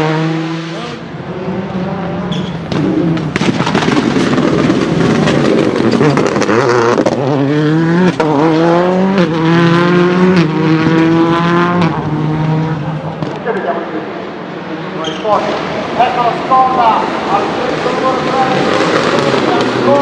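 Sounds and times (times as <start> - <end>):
rally car engine accelerating: 0.0 - 20.0
crackling backfires: 2.7 - 6.5.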